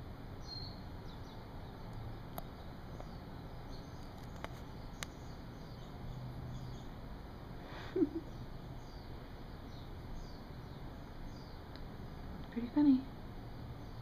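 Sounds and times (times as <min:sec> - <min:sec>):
steady low hum: 0:00.0 - 0:14.0
faint sharp clicks: 0:04.0 - 0:05.2, 0:11.7 - 0:12.6.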